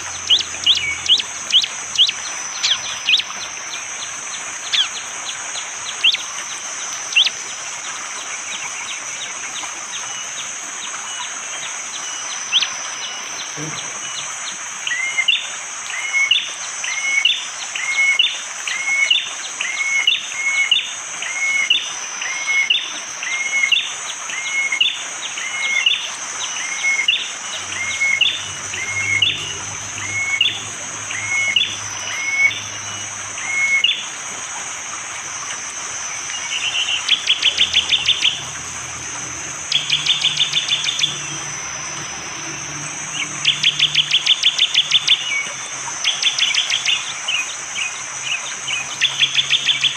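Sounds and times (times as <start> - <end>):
bird rapid trilling: 0.0 - 3.4, 36.3 - 38.7, 39.7 - 41.8
high insect drone: 0.0 - 49.9.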